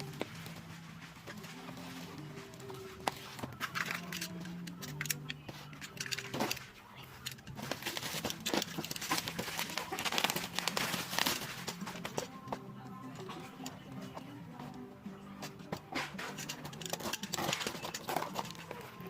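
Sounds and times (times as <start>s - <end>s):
plastic packaging crinkling: 7.4s - 12.3s.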